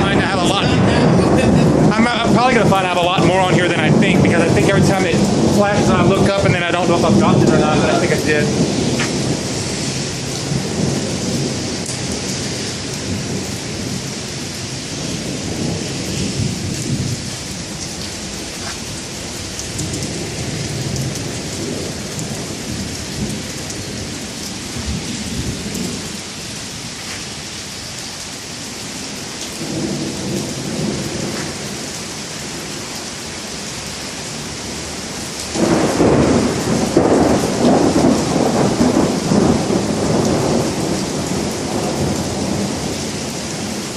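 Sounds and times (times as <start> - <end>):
loud thunder peal: 0.0 - 17.6, 35.5 - 42.9
low thunder rolling: 0.0 - 26.9, 29.6 - 32.9, 34.3 - 43.9
rain hissing: 0.0 - 43.9.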